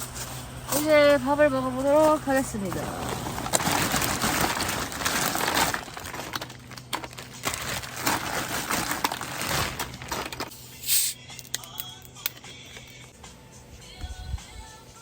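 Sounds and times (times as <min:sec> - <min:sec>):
plastic packaging crinkling: 0:02.0 - 0:10.5.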